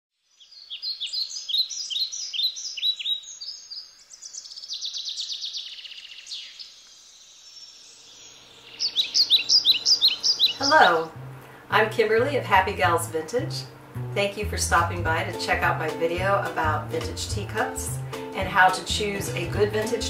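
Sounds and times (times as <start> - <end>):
songbirds chirping and trilling: 0.2 - 12.0.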